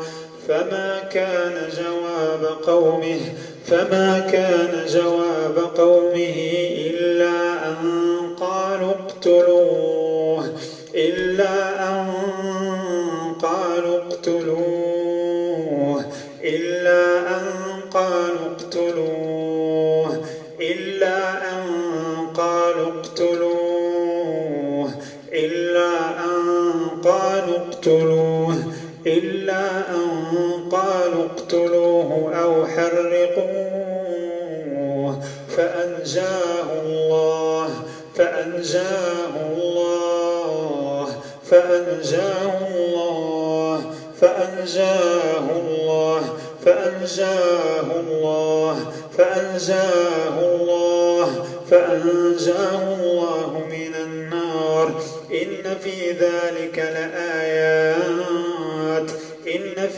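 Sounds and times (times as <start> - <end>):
short breaths: 0.0 - 0.4, 3.3 - 3.6, 10.5 - 11.0, 16.0 - 16.4, 20.2 - 20.6, 25.0 - 25.3, 28.6 - 29.0, 35.2 - 35.5, 37.8 - 38.2, 41.2 - 41.5, 43.9 - 44.2, 48.8 - 49.2, 55.0 - 55.3, 59.1 - 59.4
man chanting melodically: 0.0 - 59.9.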